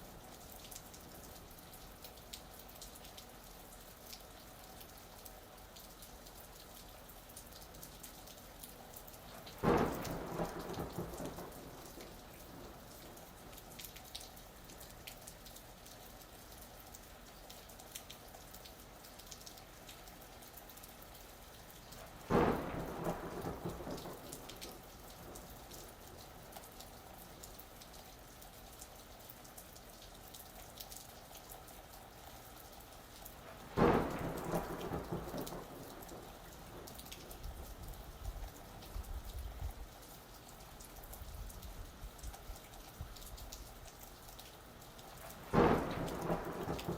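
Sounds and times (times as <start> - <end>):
gentle rain patter: 0.0 - 46.9
thunderclaps: 9.5 - 13.4, 22.0 - 26.2, 33.5 - 39.7, 45.3 - 46.9.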